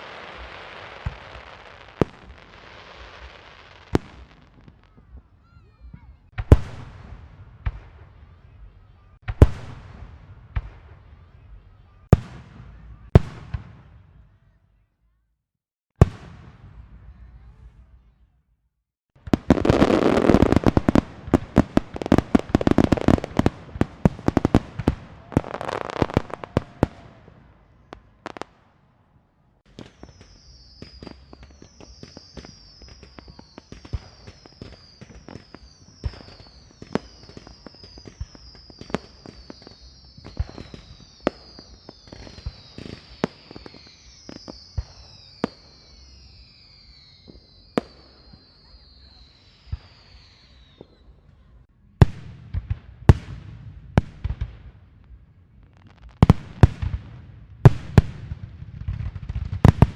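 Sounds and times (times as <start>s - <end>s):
firework pops and crackles: 0.0s - 8.1s, 19.2s - 27.2s, 29.6s - 51.0s, 55.7s - 59.9s
firecrackers banging: 19.2s - 27.2s
high falling firework whistles: 29.8s - 51.2s.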